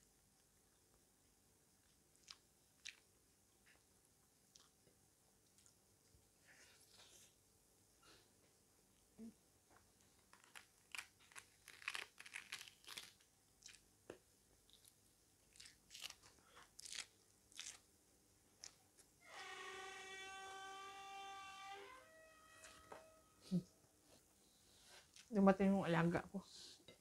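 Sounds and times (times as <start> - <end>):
lettuce crunching while chewed: 2.1 - 3.0, 10.2 - 17.9
steady held tone: 19.5 - 23.8.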